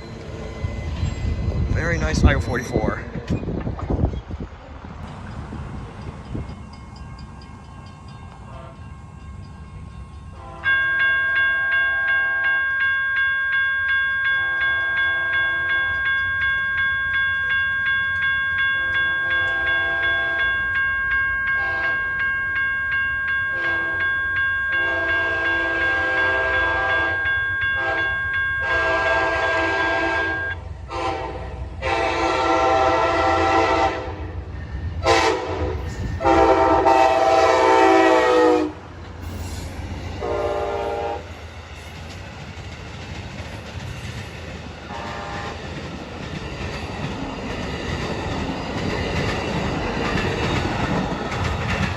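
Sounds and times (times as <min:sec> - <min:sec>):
railroad crossing bell ringing: 0:00.0 - 0:03.5, 0:05.0 - 0:42.6
locomotive horn blasts: 0:08.5 - 0:08.9, 0:10.3 - 0:12.7, 0:14.4 - 0:15.8, 0:18.8 - 0:20.6, 0:21.5 - 0:22.2, 0:23.5 - 0:24.1, 0:24.7 - 0:34.3, 0:35.0 - 0:38.8, 0:40.2 - 0:41.3, 0:44.9 - 0:45.6.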